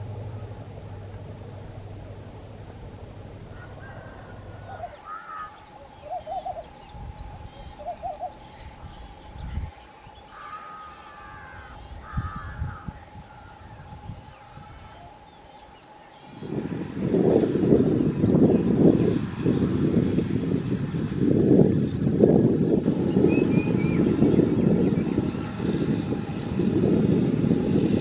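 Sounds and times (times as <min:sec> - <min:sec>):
birds calling: 0:00.0 - 0:28.0.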